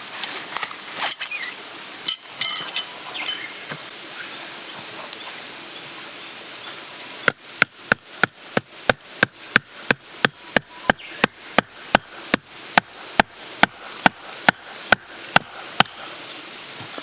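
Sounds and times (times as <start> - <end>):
soft steady hiss: 0.0 - 17.0.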